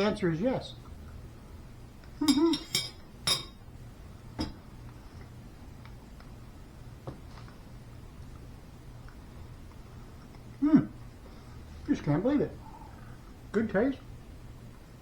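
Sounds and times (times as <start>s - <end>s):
cutlery clinking on plate: 2.2s - 3.6s.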